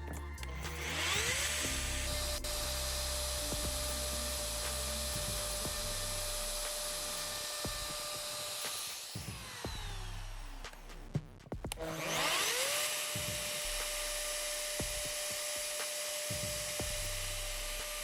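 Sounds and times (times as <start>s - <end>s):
electric router whining: 0.6s - 10.6s, 11.7s - 18.0s.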